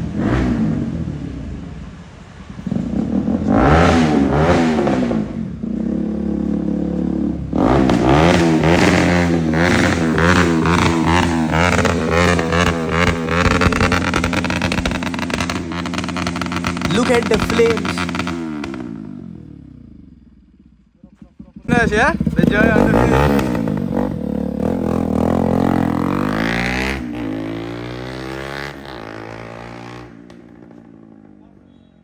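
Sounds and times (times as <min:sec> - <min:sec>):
motorcycle engine revving: 0:00.0 - 0:32.0
exhaust pops crackling: 0:07.4 - 0:19.4, 0:20.2 - 0:31.1.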